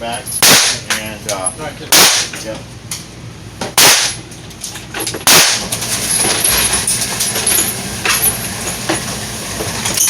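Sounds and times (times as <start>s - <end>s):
loud gunshot: 0.4s - 0.8s, 1.9s - 2.3s, 3.8s - 4.2s, 5.3s - 5.6s.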